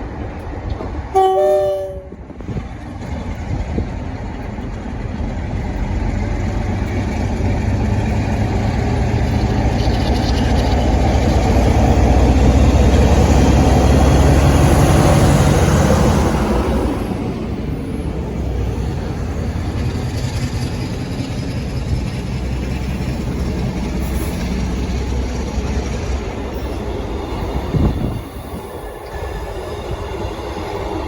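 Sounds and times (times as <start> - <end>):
train engine and wheels rumbling: 0.0 - 31.0
train horn two-note blast: 1.2 - 2.2.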